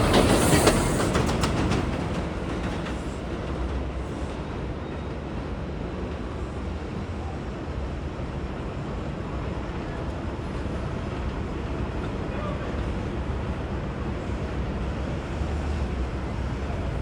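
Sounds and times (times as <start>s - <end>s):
train wheels clicking over rail joints: 0.0s - 3.9s
subway train rumbling: 0.0s - 17.0s.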